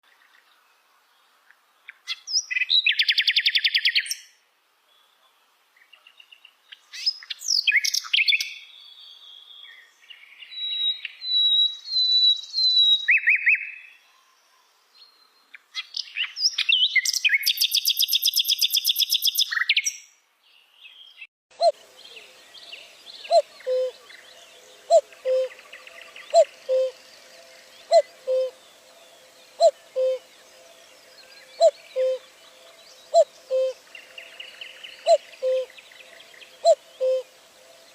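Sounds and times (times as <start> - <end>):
faint steady background noise: 0.0 - 37.9
birds chirping and trilling: 5.0 - 37.9.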